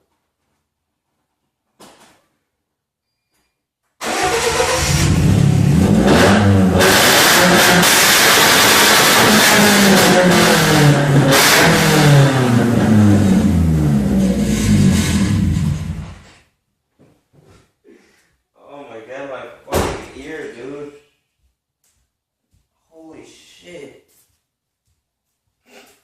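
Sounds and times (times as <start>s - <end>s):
loud car engine revving: 4.0s - 16.2s.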